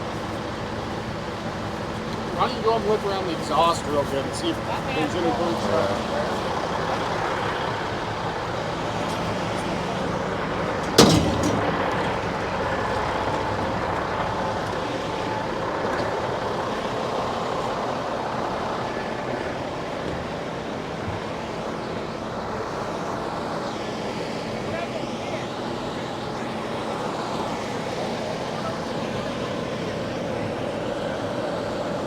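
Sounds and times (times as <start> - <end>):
vehicle engine running: 0.0 - 23.2.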